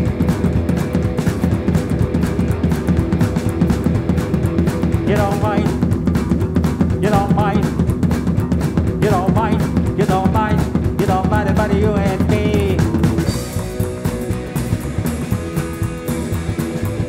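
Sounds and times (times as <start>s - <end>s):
live rock band playing: 0.0s - 17.0s
person singing: 5.0s - 5.8s, 7.0s - 7.8s, 9.0s - 13.7s.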